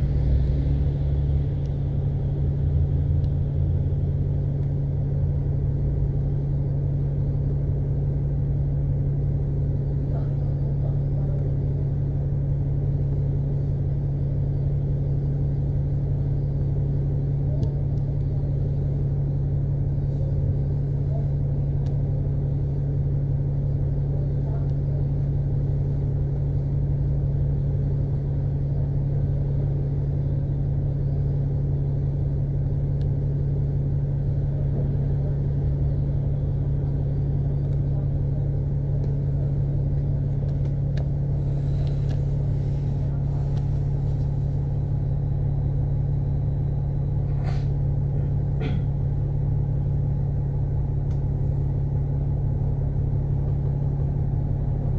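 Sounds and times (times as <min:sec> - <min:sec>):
bus engine hum: 0:00.0 - 0:54.9.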